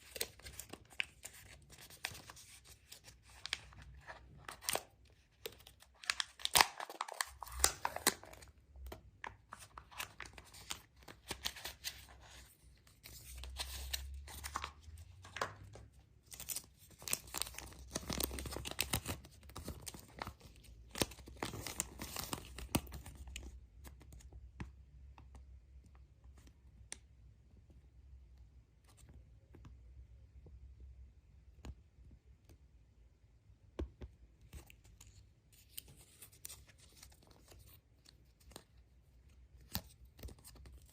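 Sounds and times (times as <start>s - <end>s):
wrapping being torn and crinkled: 0.0s - 8.6s, 13.0s - 23.5s.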